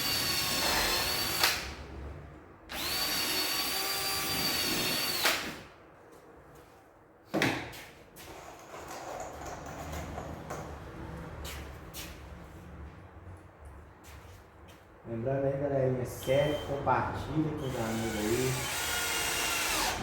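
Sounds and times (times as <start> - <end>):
power drill whining: 0.0 - 1.5, 2.7 - 5.5, 17.6 - 20.0.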